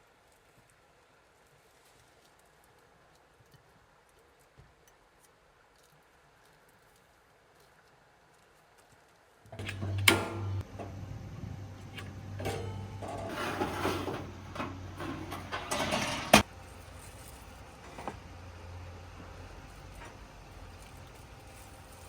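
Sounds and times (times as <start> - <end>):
motor humming: 9.5 - 22.0
objects clattering: 11.8 - 18.2.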